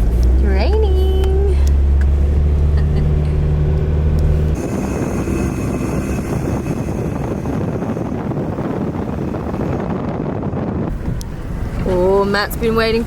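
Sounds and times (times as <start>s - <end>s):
car interior drone: 0.0s - 13.0s
rough rushing noise: 1.8s - 12.2s.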